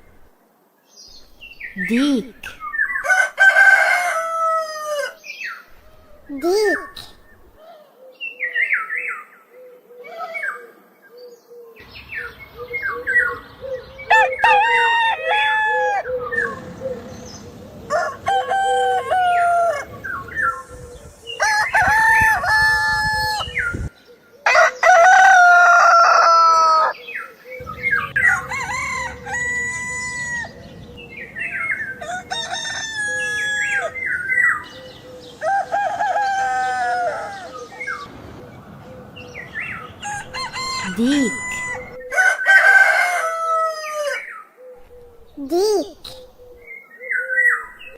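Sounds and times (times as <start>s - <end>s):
roosters crowing: 2.6s - 6.3s, 12.8s - 44.4s.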